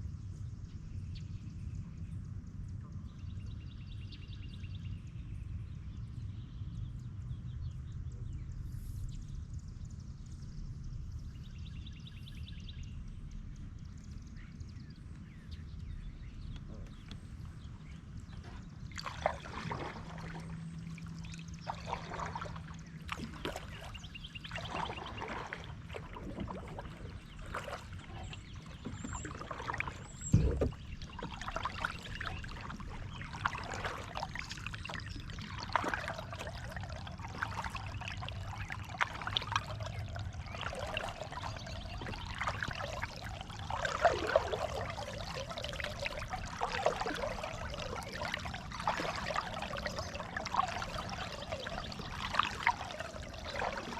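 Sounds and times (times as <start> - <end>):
water splashing off paddle blades: 18.2 - 53.9.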